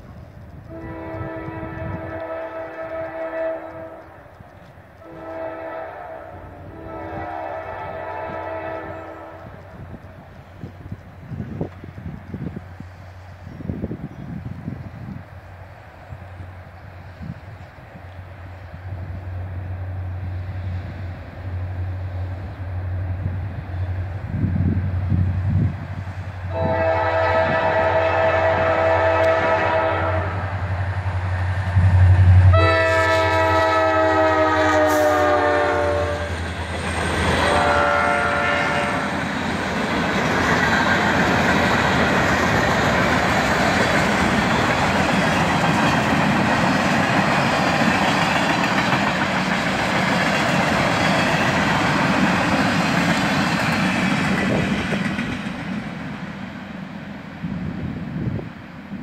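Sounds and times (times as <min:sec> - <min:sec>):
locomotive rumble: 0:00.0 - 0:59.0
train air horn blasts: 0:00.7 - 0:04.2, 0:05.0 - 0:09.8, 0:26.5 - 0:30.8, 0:31.8 - 0:36.4, 0:37.4 - 0:39.2.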